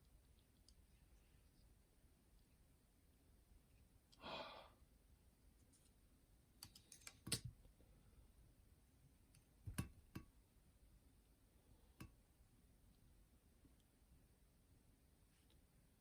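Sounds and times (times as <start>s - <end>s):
breathy exhale: 4.2s - 4.8s
small plastic and metal parts clicking: 6.6s - 7.5s.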